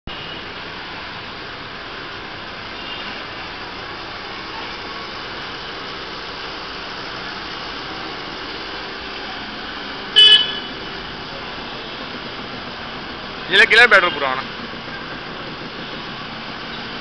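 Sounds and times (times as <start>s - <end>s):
motorbike engine: 7.8s - 17.0s
motorbike horn blast: 10.2s - 10.9s.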